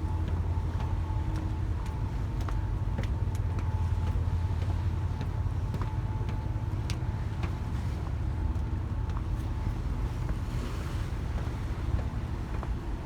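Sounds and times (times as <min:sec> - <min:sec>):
ship engine rumble: 0:00.0 - 0:13.0.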